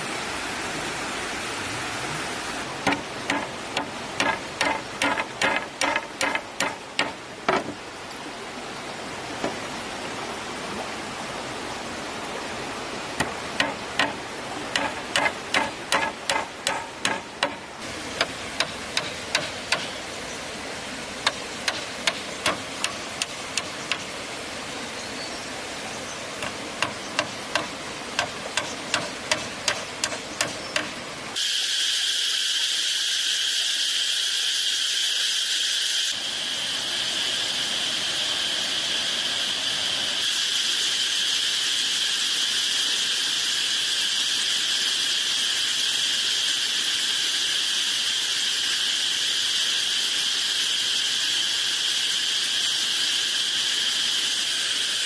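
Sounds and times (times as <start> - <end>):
sharp knocks: 2.8 - 7.8, 13.2 - 17.6
shrill insect chorus: 32.5 - 55.0.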